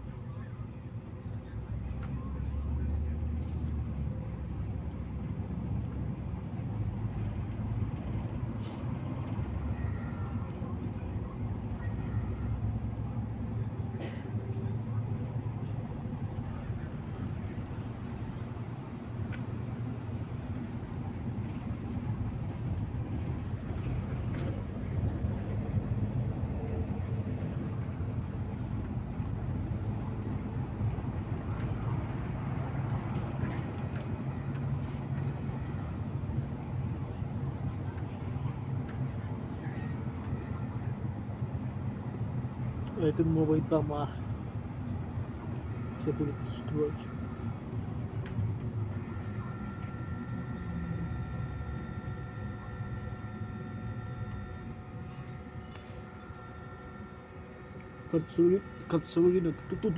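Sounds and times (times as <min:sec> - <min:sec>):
bus engine and road rumble: 0:00.0 - 0:59.9
short hiss: 0:08.6 - 0:08.9.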